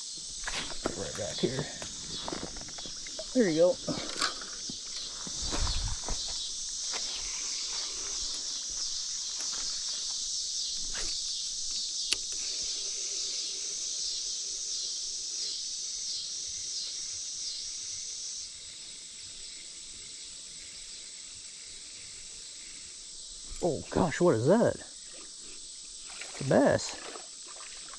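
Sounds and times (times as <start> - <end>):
insects buzzing and trilling: 0.0 - 27.9
sharp click: 12.1 - 12.4.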